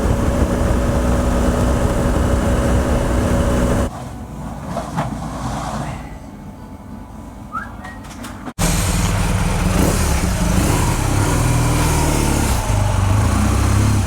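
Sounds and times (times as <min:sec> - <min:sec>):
low engine hum: 0:00.0 - 0:03.9, 0:08.6 - 0:14.0
motorcycle engine running: 0:00.0 - 0:03.9, 0:08.6 - 0:14.0
wind noise: 0:00.0 - 0:03.9.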